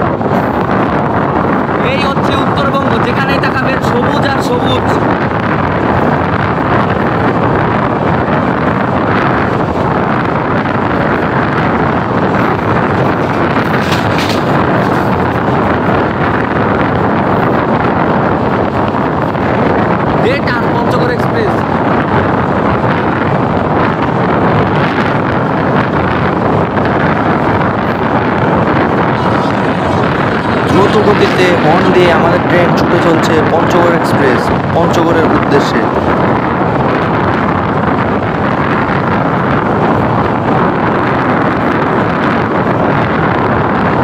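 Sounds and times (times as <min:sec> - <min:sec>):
train rumbling: 0:00.0 - 0:44.0
wind buffeting microphone: 0:00.0 - 0:44.0.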